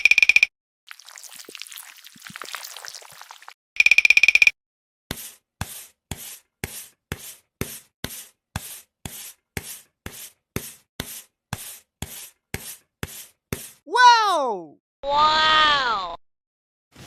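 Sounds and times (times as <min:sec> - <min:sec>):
scratchy rubbing strokes: 0:05.1 - 0:13.8.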